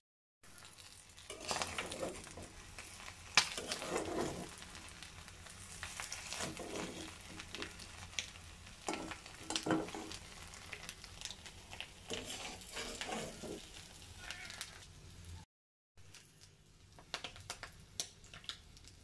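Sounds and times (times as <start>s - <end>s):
eggs sizzling in hot oil: 0.4s - 19.0s
metal spatula scraping pan: 1.2s - 4.8s, 5.8s - 7.7s, 8.8s - 10.5s, 12.0s - 13.8s.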